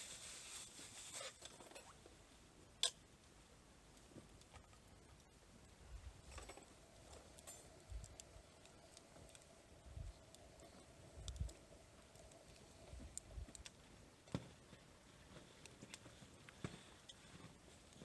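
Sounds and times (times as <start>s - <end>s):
faint steady hum: 0.0s - 18.0s
faint clicks: 7.3s - 13.8s.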